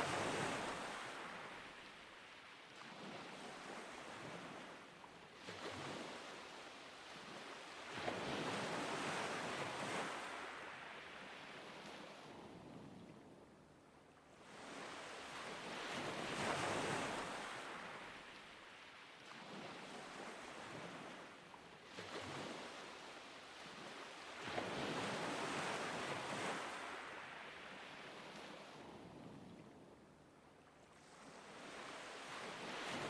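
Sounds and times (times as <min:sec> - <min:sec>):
light wind: 0:00.0 - 0:33.0.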